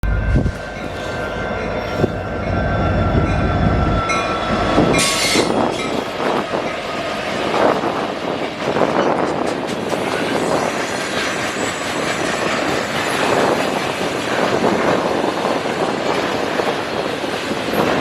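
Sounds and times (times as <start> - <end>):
heavy low rumble: 0.0 - 0.9
freight train wheels on track: 0.0 - 18.0
wheels squealing: 3.8 - 6.0.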